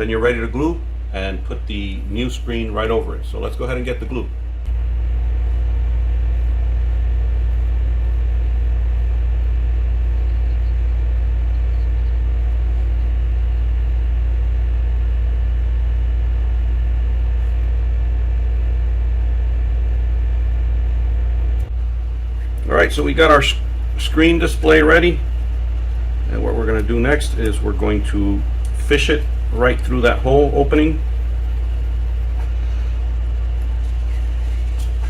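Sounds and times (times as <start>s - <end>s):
loud low hum: 0.0s - 35.0s.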